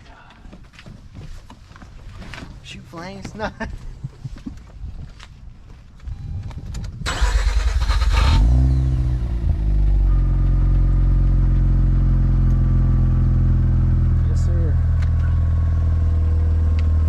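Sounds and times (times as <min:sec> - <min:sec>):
rotary engine starting and idling: 0:06.8 - 0:12.5
starter motor cranking: 0:07.0 - 0:08.7.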